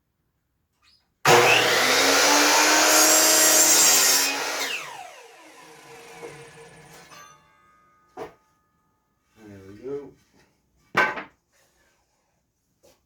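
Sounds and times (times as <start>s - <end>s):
miter saw cutting wood: 1.3s - 7.2s
saw blade winding down: 1.3s - 7.4s.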